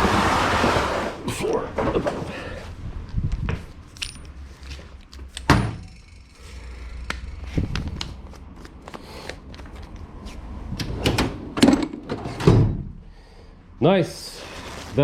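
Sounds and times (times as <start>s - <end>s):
tools clicking and knocking: 3.9s - 6.3s.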